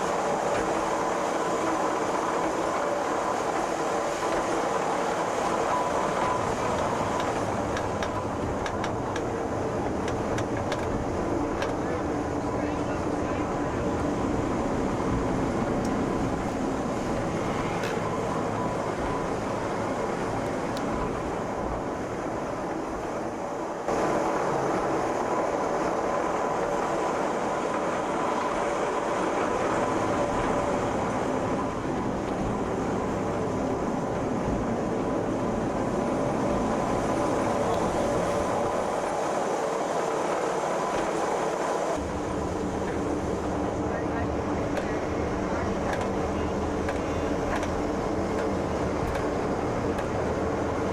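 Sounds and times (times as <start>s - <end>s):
train rumbling with faint whine: 0.0s - 50.9s.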